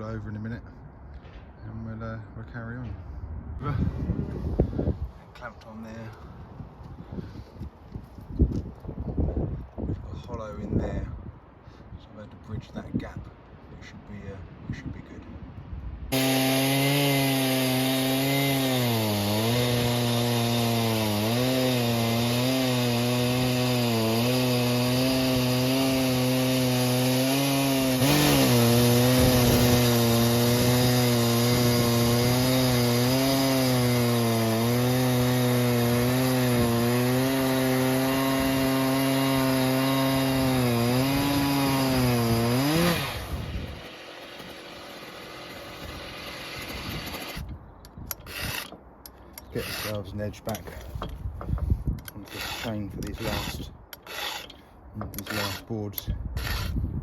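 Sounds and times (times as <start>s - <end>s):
chainsaw cutting log: 16.1s - 47.5s, 48.2s - 48.8s, 49.4s - 56.9s.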